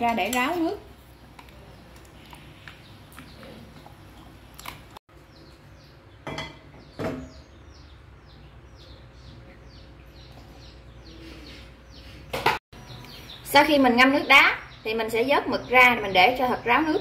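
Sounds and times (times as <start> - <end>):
small bird chirping: 6.8 - 17.0.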